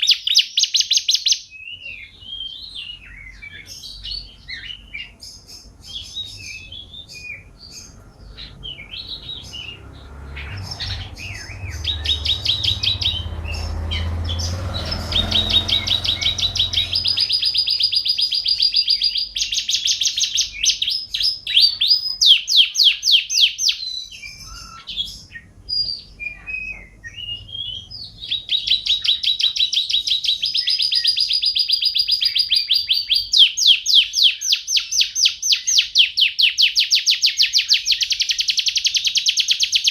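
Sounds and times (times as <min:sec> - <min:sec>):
songbird trilling and chattering: 0:00.0 - 0:39.9
low rumble: 0:07.6 - 0:18.0.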